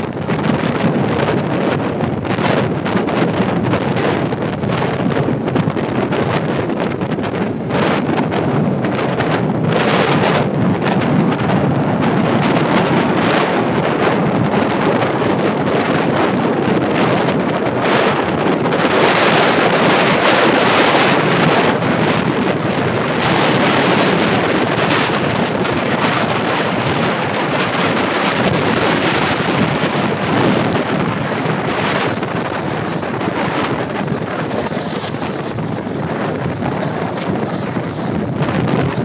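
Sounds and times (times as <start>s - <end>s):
jet engines and airflow rushing: 0.0s - 39.0s.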